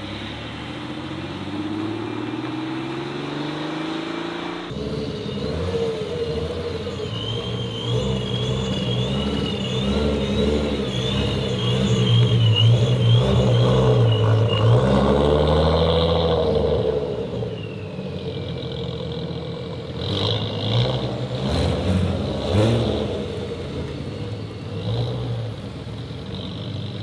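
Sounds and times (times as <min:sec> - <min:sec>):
car engine pulling away: 0:00.0 - 0:27.0
high wavering whistle: 0:05.0 - 0:15.2.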